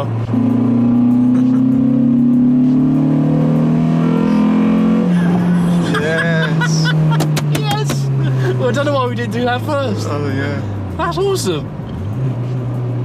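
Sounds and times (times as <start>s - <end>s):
car engine revving hard: 0.0s - 10.7s.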